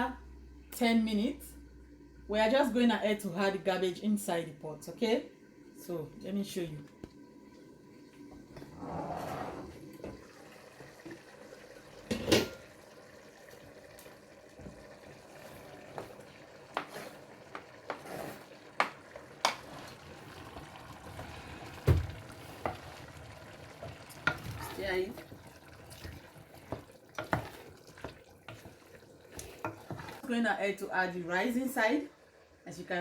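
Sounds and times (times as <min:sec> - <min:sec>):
spoon stirring food in a pot: 0:13.6 - 0:30.4.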